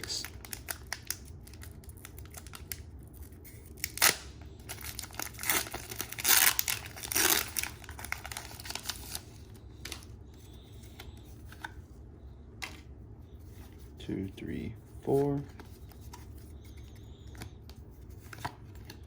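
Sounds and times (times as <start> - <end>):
foil wrapper tearing and crinkling: 0.1 - 10.0.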